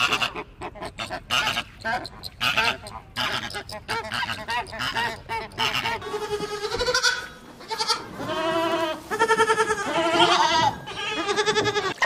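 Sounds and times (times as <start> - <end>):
goat bleating: 0.0 - 12.0.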